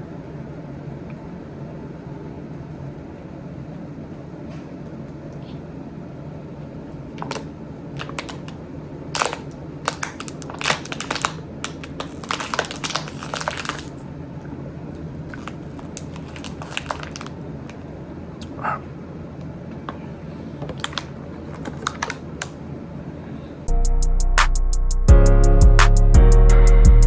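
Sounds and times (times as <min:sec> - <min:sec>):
steady low hum: 0:00.0 - 0:23.7
crispy food and packaging crackling: 0:07.0 - 0:14.1, 0:14.9 - 0:17.8, 0:20.6 - 0:22.7.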